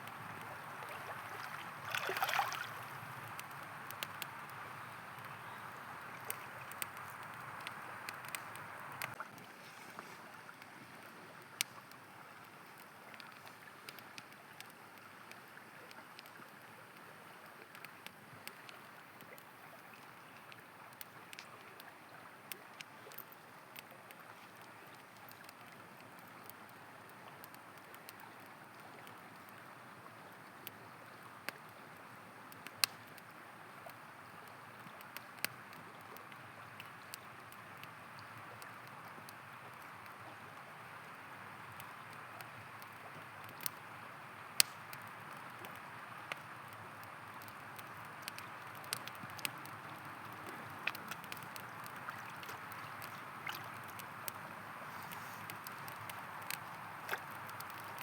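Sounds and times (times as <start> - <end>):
campfire crackling and popping: 0.0 - 9.6, 10.4 - 58.0
river flowing: 0.0 - 13.8, 36.4 - 58.0.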